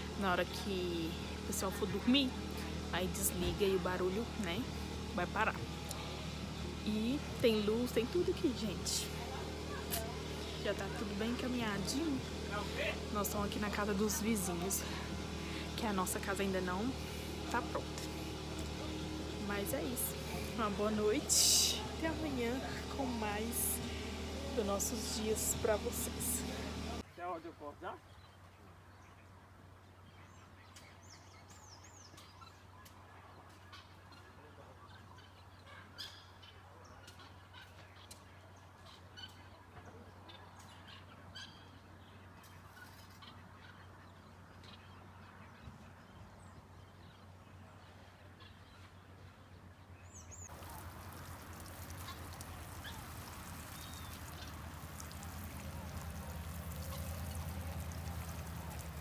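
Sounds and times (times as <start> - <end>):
birds calling: 0.0 - 27.0, 50.0 - 59.0
low hum: 0.0 - 27.0.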